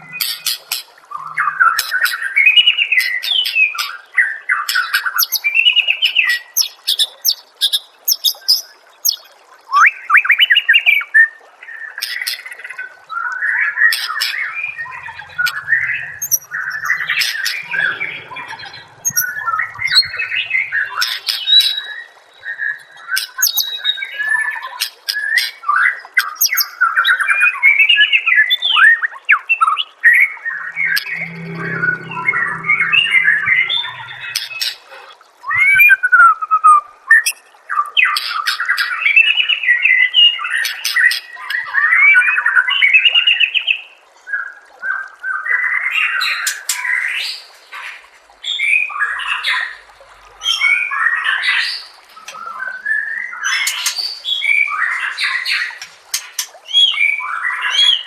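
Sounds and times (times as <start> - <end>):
songbird chirping and warbling: 0.0 - 3.6, 13.2 - 24.2, 30.1 - 35.8.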